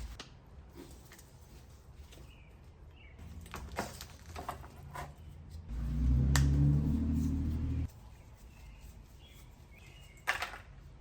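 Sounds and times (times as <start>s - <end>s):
low motor hum: 5.6s - 7.9s.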